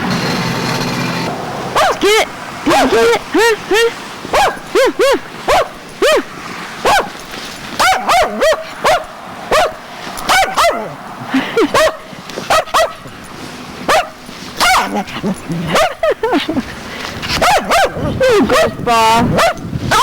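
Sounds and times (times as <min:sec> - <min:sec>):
dog barking: 0:01.7 - 0:03.2, 0:04.3 - 0:07.2, 0:07.8 - 0:13.2, 0:13.8 - 0:16.2, 0:17.3 - 0:20.0.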